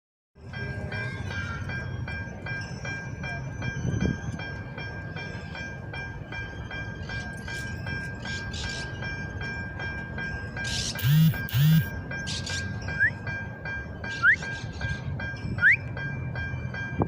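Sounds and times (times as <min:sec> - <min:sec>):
train rumble: 0:00.4 - 0:17.0
pulsing train siren: 0:10.6 - 0:13.3, 0:13.9 - 0:16.0.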